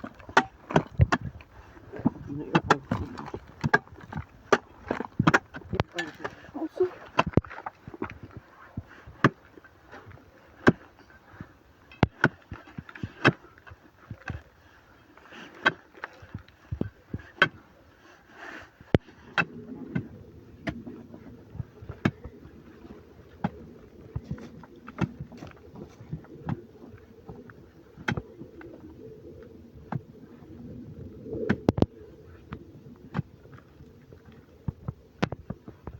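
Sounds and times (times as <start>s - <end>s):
low steady hum: 0.0s - 15.3s.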